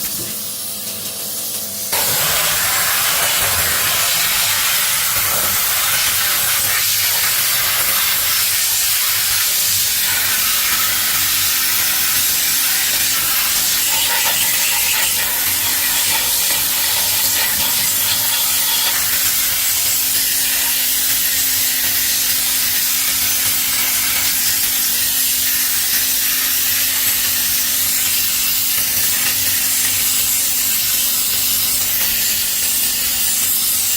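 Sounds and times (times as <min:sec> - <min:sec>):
spray hissing: 0:02.0 - 0:22.2.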